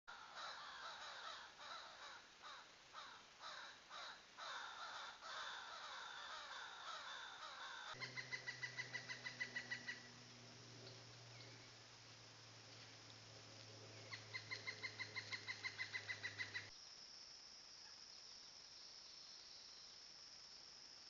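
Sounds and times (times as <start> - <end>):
bird rapid pulsing call: 0.1 - 10.2, 14.0 - 16.7
birds repeated falling calls: 0.1 - 11.8, 14.0 - 16.7
low steady hum: 8.0 - 16.7.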